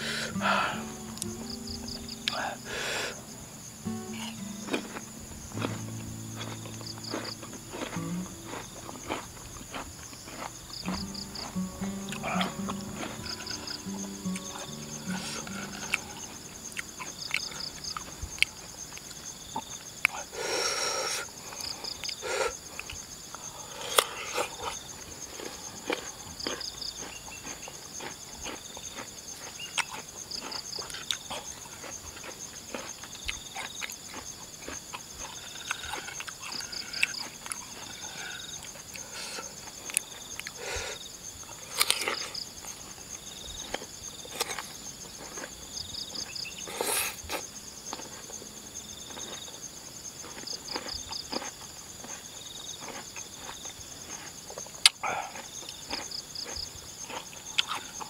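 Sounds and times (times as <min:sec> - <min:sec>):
chewing and crunching: 0:00.0 - 0:58.0
insects chirping: 0:00.0 - 0:58.0.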